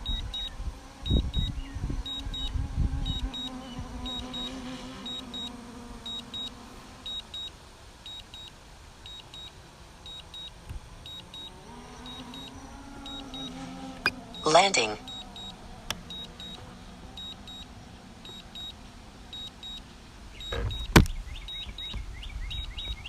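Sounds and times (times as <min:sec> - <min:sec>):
remote controller double beeps: 0:00.0 - 0:00.5, 0:03.1 - 0:05.5, 0:08.1 - 0:08.5, 0:09.1 - 0:09.5, 0:10.1 - 0:10.5, 0:11.1 - 0:16.6, 0:17.2 - 0:17.6, 0:20.4 - 0:21.9
wind buffeting microphone: 0:00.0 - 0:04.3, 0:20.1 - 0:23.0.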